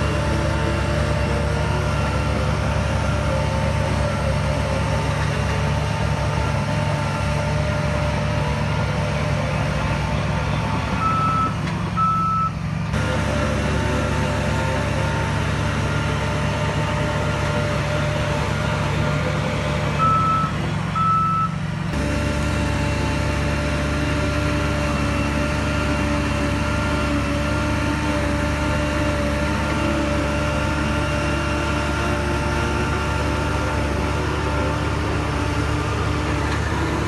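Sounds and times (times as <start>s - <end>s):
diesel engine running: 0.0s - 37.0s
reversing alarm beeps: 11.0s - 12.6s, 20.0s - 21.6s.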